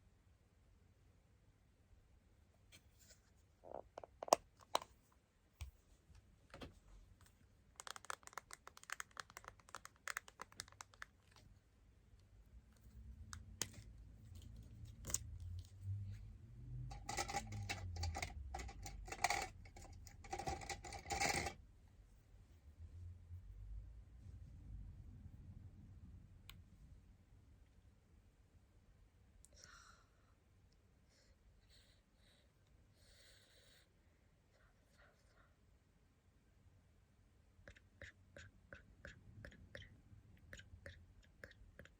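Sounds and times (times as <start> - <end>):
crackly tapping and scratching: 6.5 - 11.6, 16.8 - 21.6.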